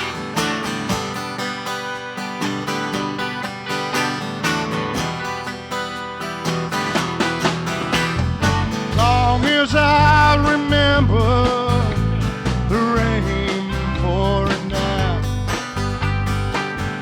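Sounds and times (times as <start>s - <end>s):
acoustic guitar strumming: 0.0s - 17.0s
steady bass: 7.0s - 17.0s
person singing: 9.0s - 12.0s, 12.7s - 15.3s.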